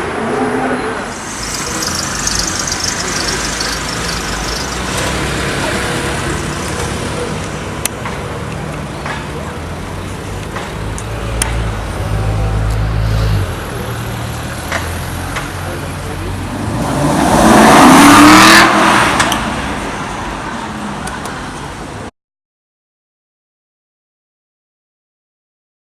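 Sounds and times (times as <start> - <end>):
car accelerating hard: 0.0 - 7.6, 16.0 - 20.4
low engine rumble: 1.0 - 17.2.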